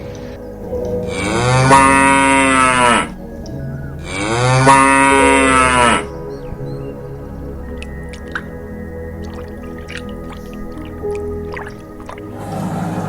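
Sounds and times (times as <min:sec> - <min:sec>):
cow mooing: 0:01.1 - 0:03.2, 0:04.1 - 0:06.1.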